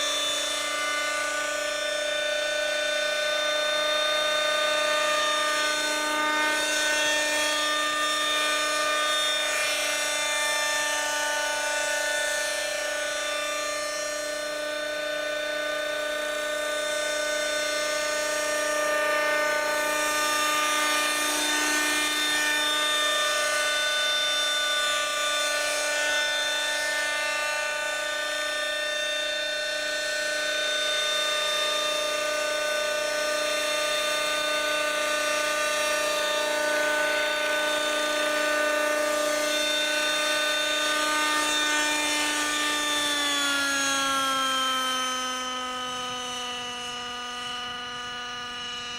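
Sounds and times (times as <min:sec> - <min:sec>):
model helicopter engine whine: 0:00.0 - 0:48.9.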